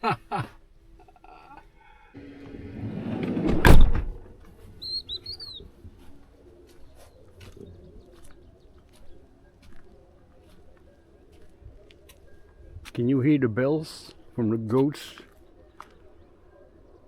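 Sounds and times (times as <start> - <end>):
sliding door rolling and slamming: 2.2 - 4.4
bird chirping: 4.4 - 17.0.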